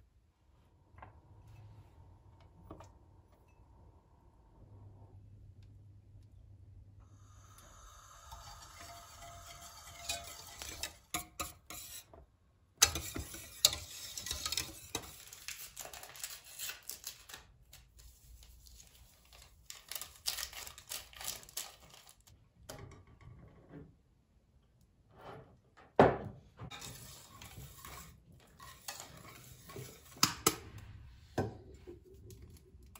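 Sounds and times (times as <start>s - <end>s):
stirring: 7.5s - 16.7s, 26.7s - 30.8s
dishes and utensils clinking: 8.0s - 12.0s.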